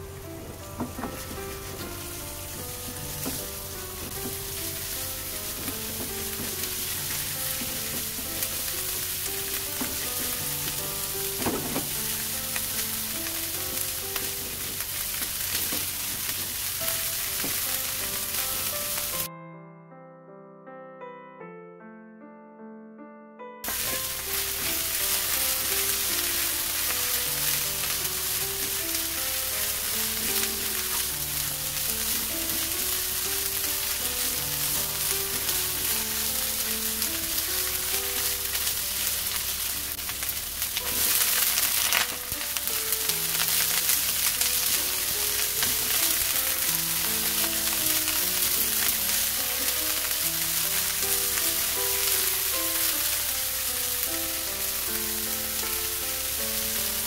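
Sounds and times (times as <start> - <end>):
food sizzling in a pan: 0.0 - 19.3, 23.6 - 57.0
soft piano music: 0.0 - 57.0
spatula stirring: 23.7 - 37.5.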